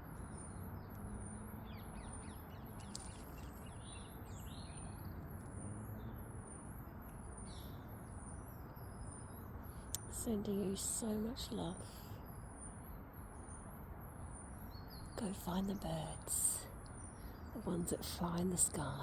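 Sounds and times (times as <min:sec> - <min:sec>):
small songbirds chirping: 0:00.0 - 0:19.0
low background rumble: 0:14.9 - 0:19.0.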